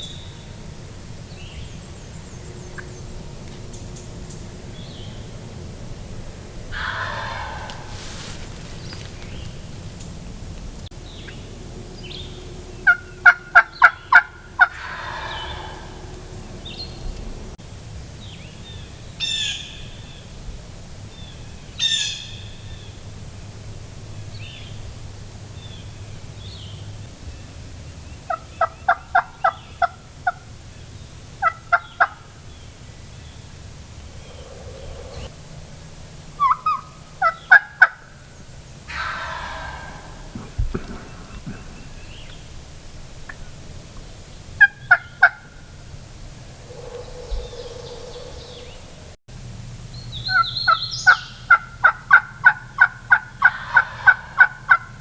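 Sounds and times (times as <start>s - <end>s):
faint bird calls: 1.2s - 10.3s, 11.0s - 17.5s, 25.6s - 49.2s, 50.2s - 55.0s
wild turkey yelps: 6.7s - 9.6s, 12.8s - 16.8s, 28.3s - 30.4s, 31.4s - 32.3s, 36.4s - 38.2s, 38.9s - 42.4s, 44.6s - 45.6s, 46.5s - 49.1s, 50.2s - 55.0s.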